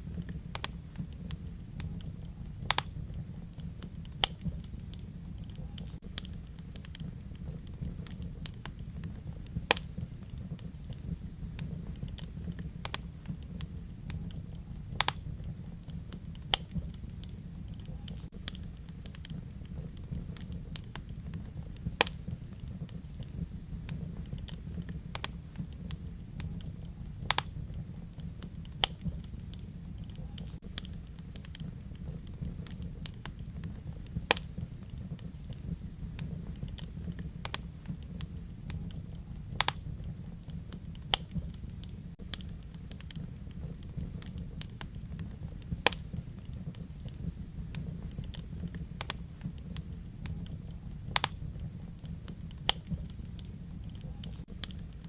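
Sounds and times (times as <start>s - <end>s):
fire crackling and popping: 0.0s - 55.0s
low rumble of flames: 0.0s - 55.0s.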